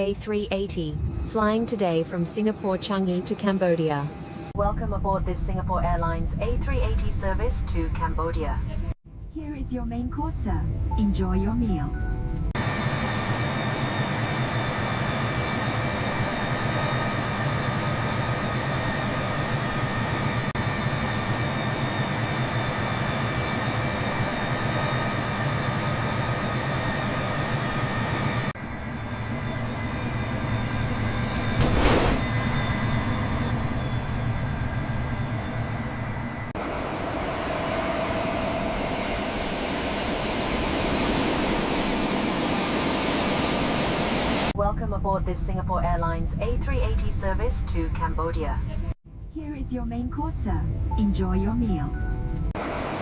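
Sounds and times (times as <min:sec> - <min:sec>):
airliner cabin noise: 0:12.3 - 0:44.5
airflow and engine drone: 0:12.4 - 0:44.7.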